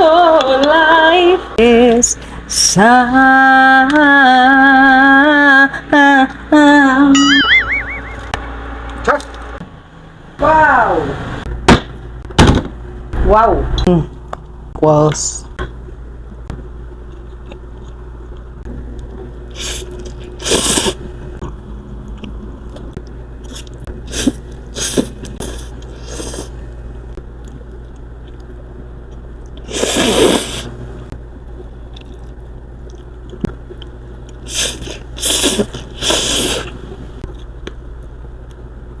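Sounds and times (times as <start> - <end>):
steady low hum: 0.0 - 39.0
person slurping noodles: 19.5 - 21.1, 23.5 - 26.6, 29.6 - 30.8, 34.4 - 37.1.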